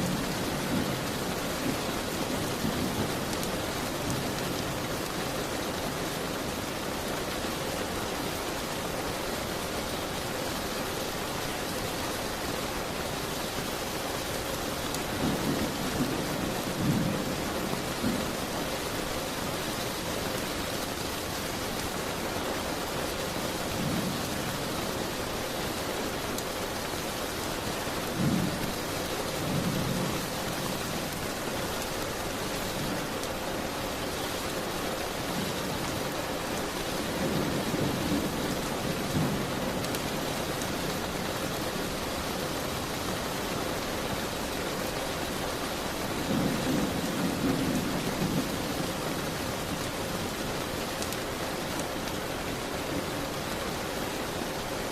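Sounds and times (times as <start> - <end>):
steady rain hiss: 0.0 - 54.9.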